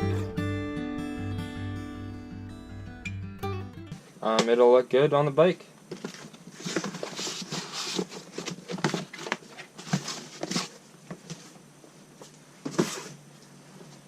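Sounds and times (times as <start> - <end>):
packaging rustling: 5.9 - 11.6.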